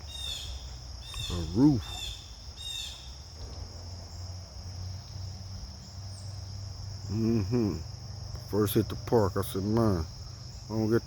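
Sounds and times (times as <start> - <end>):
high-pitched insect chorus: 0.0 - 11.0
man talking: 1.3 - 2.0, 8.4 - 10.1, 10.7 - 11.0.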